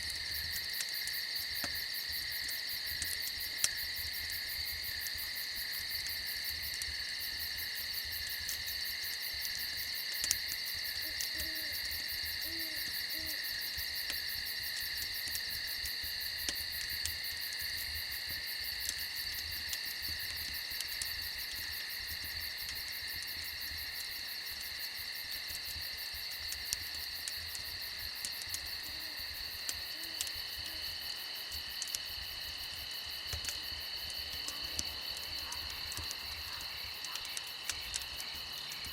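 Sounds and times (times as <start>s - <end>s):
cricket chorus: 0.0s - 38.9s
faint crackles: 0.0s - 38.9s
soft owl hoots: 11.0s - 11.8s, 12.4s - 13.4s.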